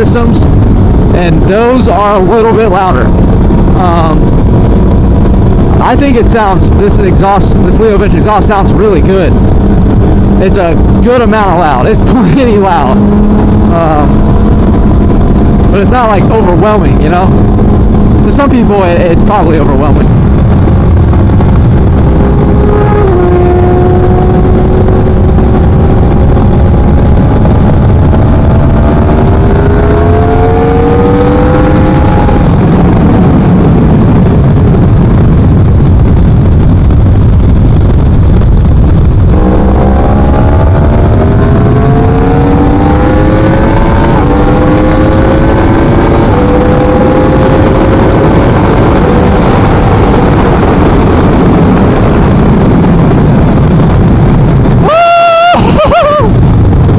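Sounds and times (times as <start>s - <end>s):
motorcycle engine revving through gears: 12.0s - 15.8s, 16.5s - 36.1s, 38.9s - 54.8s.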